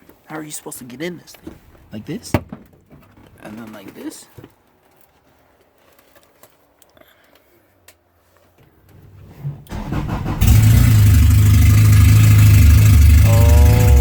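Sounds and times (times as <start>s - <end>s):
car engine starting and running: 9.7s - 14.0s.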